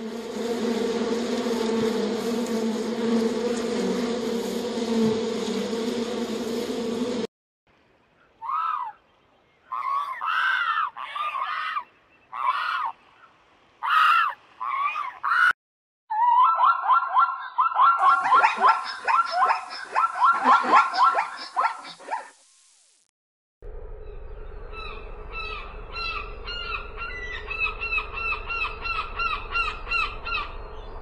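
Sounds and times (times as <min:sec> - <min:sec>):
bees buzzing: 0:00.0 - 0:07.3
zebra calls: 0:18.0 - 0:22.0.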